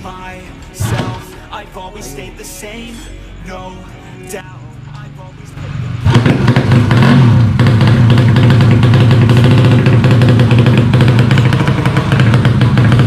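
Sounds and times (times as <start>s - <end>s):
racing motorcycle engine running: 4.8s - 13.0s.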